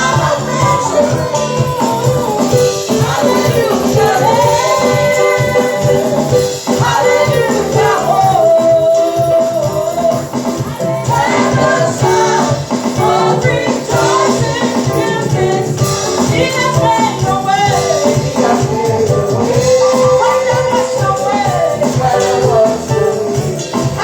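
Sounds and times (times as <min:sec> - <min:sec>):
band playing with steady beat: 0:00.0 - 0:24.0
people singing: 0:00.0 - 0:24.0.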